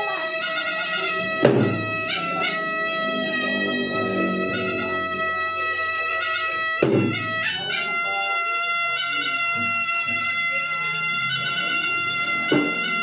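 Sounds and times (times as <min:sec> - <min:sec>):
loud drum strokes: 0:00.0 - 0:07.8
shrill shawm notes: 0:00.0 - 0:13.0
drum ensemble: 0:00.8 - 0:05.8, 0:06.8 - 0:07.4, 0:12.2 - 0:13.0.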